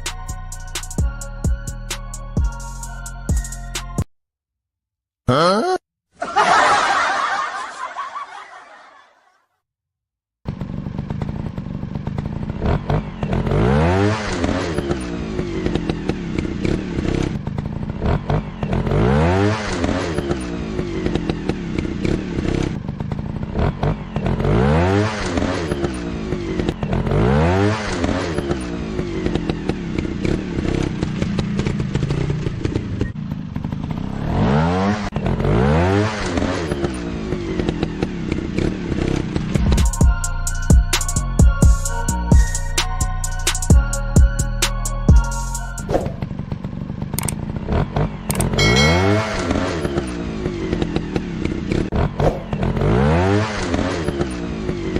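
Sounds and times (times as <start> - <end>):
dirt bike engines revving: 10.6 - 40.0, 45.9 - 54.9.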